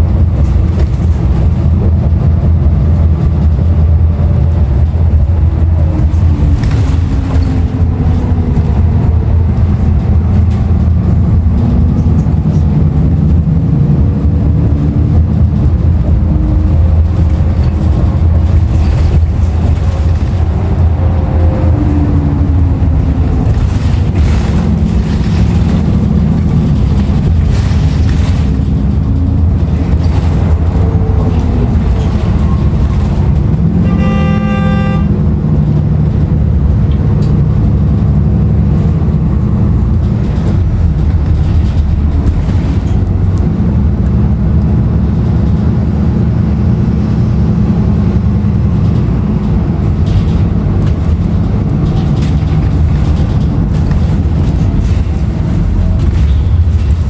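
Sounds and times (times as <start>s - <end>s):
bus diesel engine rumble: 0.0s - 57.0s
bus horn: 31.3s - 35.7s.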